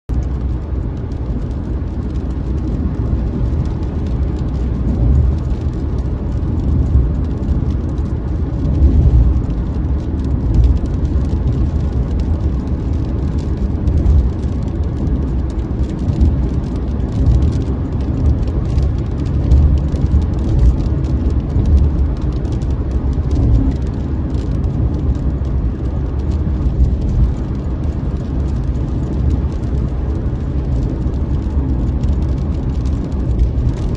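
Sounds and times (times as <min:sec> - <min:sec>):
motor vehicle engine rumble: 0:00.0 - 0:33.9.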